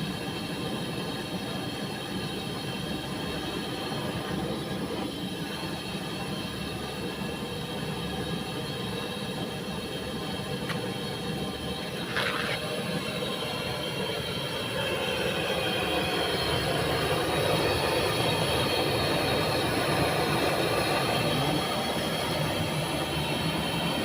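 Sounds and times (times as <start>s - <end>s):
mechanical whine over rough rasp: 11.2s - 13.0s.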